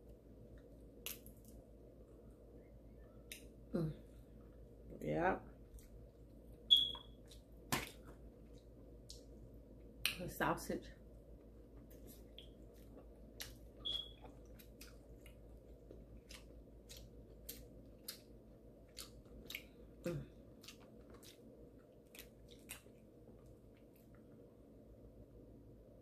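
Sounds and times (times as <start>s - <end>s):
person chewing with lip smacks: 11.8s - 24.2s.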